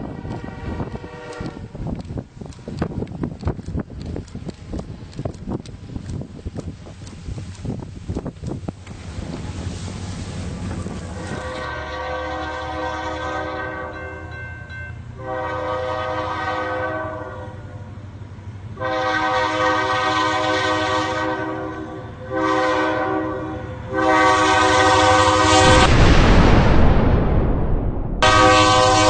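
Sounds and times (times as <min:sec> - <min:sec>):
train horn blasts: 0:00.0 - 0:01.8, 0:11.2 - 0:17.9, 0:18.8 - 0:25.9, 0:28.2 - 0:29.0
low rumble of moving train: 0:00.0 - 0:29.0.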